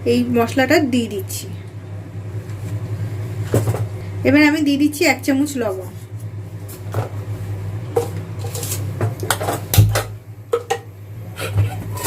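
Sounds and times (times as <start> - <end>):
steady low hum: 0.0 - 12.0
metal utensils knocking on pot: 9.3 - 10.9.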